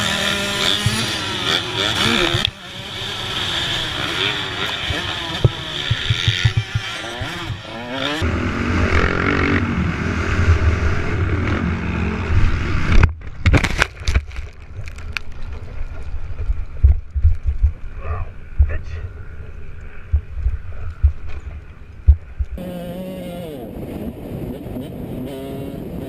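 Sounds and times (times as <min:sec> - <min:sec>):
motorcycle engines revving: 0:00.0 - 0:13.0, 0:22.1 - 0:26.0
sharp knocks: 0:05.4 - 0:07.6.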